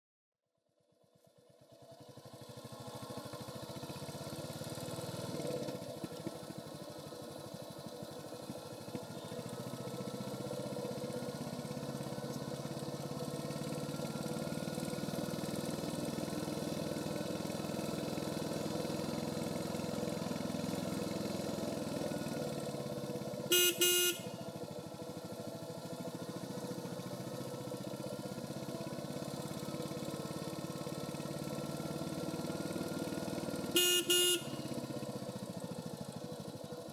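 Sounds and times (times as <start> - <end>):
motorcycle engine running: 0.9 - 36.9
horn honk: 23.4 - 24.6, 33.6 - 35.1.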